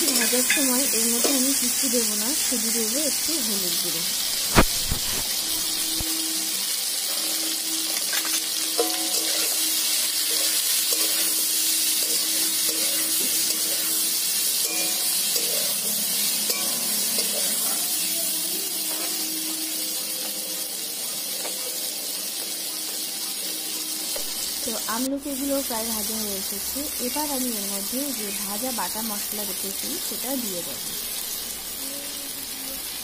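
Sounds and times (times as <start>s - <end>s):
gooseberries sizzling in hot oil: 0.0s - 33.0s
metal spatula scraping a pan: 7.0s - 18.0s.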